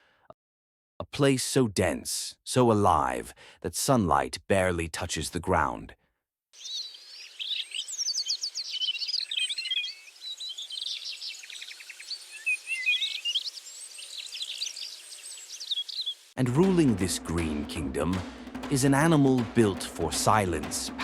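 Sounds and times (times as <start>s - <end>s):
forest birds calling: 6.6s - 16.4s
faint forest background hiss: 6.6s - 21.0s.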